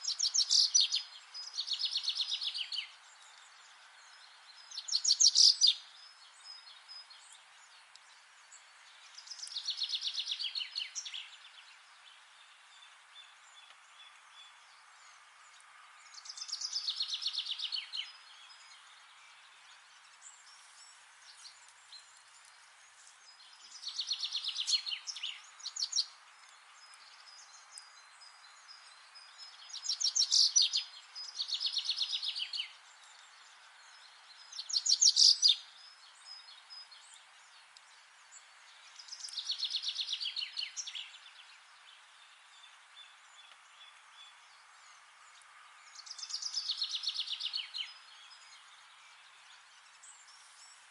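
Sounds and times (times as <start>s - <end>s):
faint hiss: 0.0s - 50.9s
songbird trilling: 4.7s - 5.8s, 34.6s - 35.6s.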